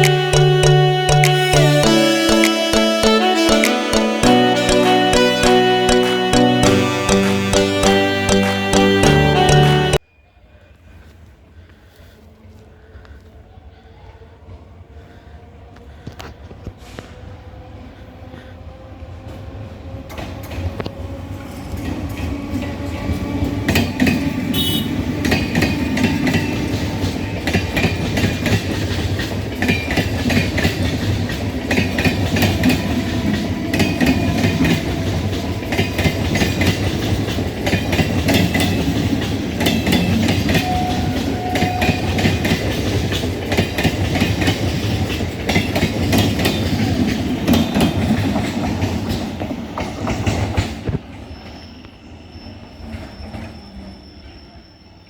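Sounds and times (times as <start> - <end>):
train wheels clacking over rail joints: 25.2 - 51.0.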